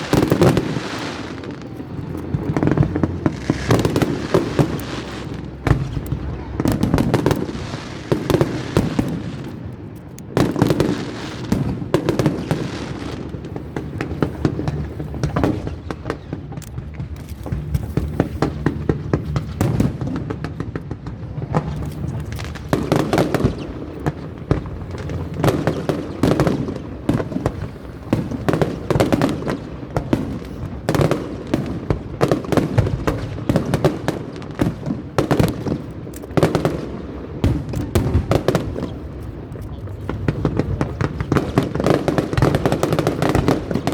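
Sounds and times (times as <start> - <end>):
fireworks bangs and crackling: 0.0 - 43.9
heavy fireworks booms: 0.0 - 43.9.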